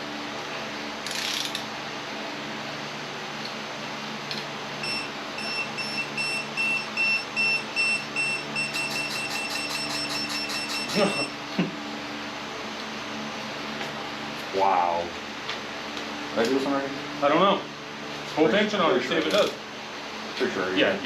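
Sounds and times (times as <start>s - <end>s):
torque wrench beeping: 4.8s - 11.3s.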